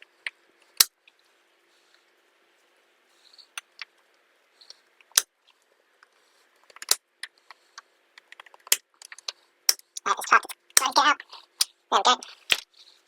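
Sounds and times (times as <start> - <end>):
small metal tools clicking: 8.2 - 10.9.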